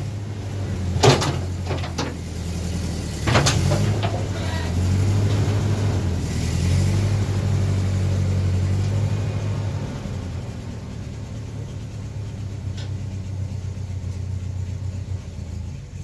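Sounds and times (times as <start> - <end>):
engine running steadily: 0.0 - 16.0
sharp metallic knocks: 1.0 - 2.3, 3.2 - 4.4.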